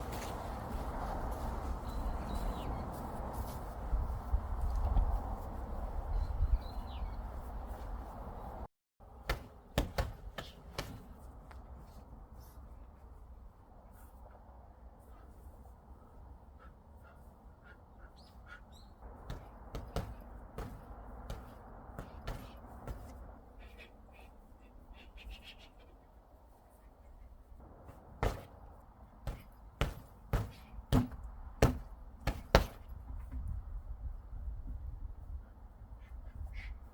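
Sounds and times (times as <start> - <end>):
sharp knocks: 27.9 - 28.6, 29.3 - 32.9.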